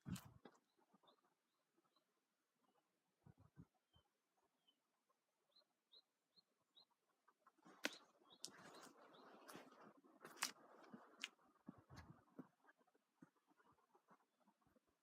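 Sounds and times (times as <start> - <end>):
faint bird chirps: 0.0 - 10.4.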